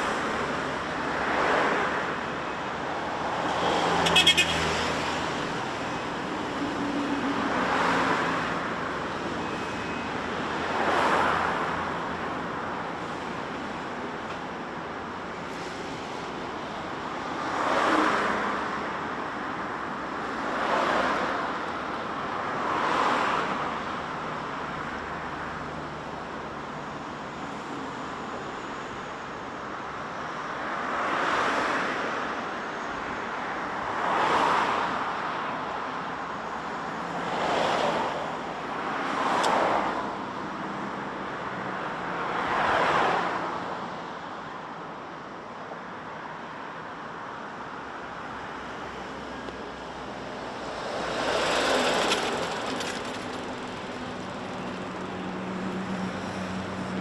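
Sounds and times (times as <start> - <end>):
cars passing: 0.0 - 25.4, 46.0 - 57.0
steady road hum: 0.0 - 57.0.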